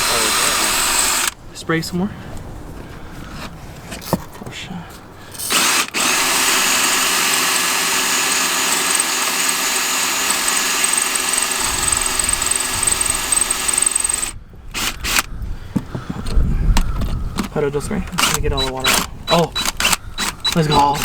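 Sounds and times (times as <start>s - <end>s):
power drill whining under load: 0.0s - 1.4s, 5.4s - 15.3s, 18.2s - 21.0s.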